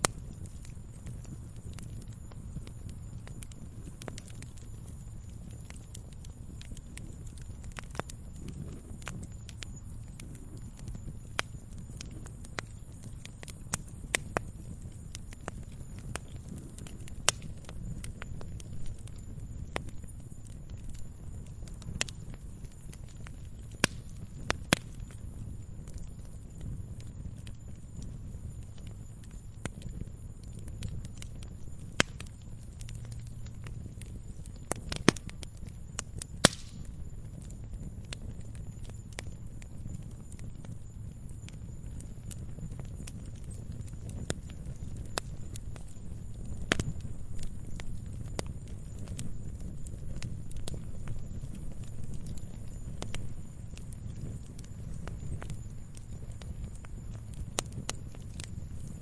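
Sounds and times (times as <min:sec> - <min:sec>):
campfire crackling: 0:00.0 - 0:59.0
low steady rumble: 0:00.0 - 0:59.0
sharp loud fire pops: 0:36.4 - 0:36.9.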